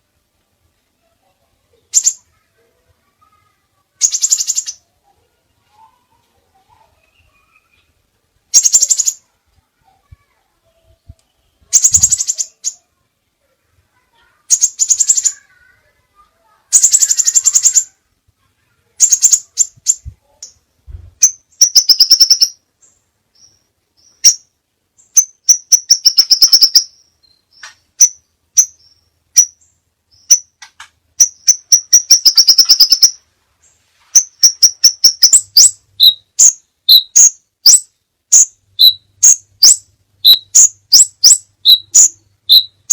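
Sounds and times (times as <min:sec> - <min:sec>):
bird chirping: 0:01.0 - 0:09.4, 0:10.6 - 0:18.0, 0:18.9 - 0:42.9
bird trilling: 0:04.0 - 0:04.8, 0:08.5 - 0:09.2, 0:11.7 - 0:12.8, 0:14.5 - 0:15.5, 0:16.7 - 0:18.0, 0:19.0 - 0:20.6, 0:21.2 - 0:22.6, 0:23.4 - 0:30.6, 0:31.2 - 0:33.2, 0:34.2 - 0:42.9.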